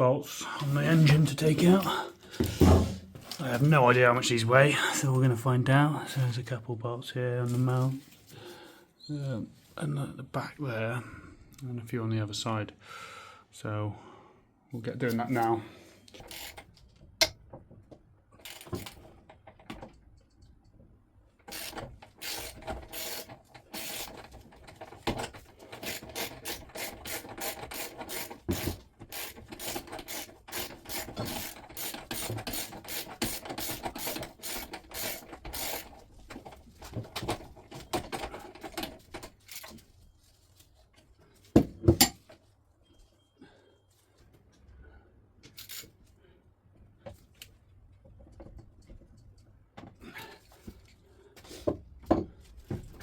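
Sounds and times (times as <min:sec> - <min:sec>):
socket ratchet clicking: 0:21.5 - 0:24.2.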